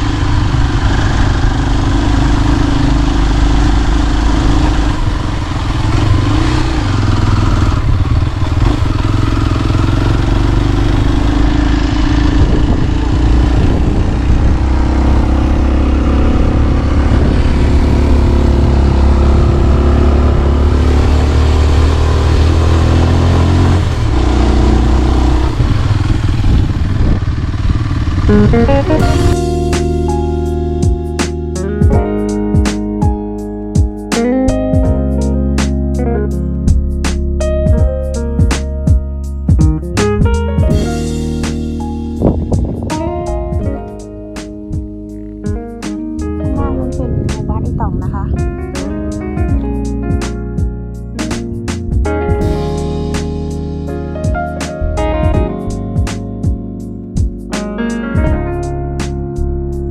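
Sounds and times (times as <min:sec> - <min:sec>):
vehicle engine driving: 0:00.0 - 0:59.9
music with plucked notes: 0:28.3 - 0:59.9.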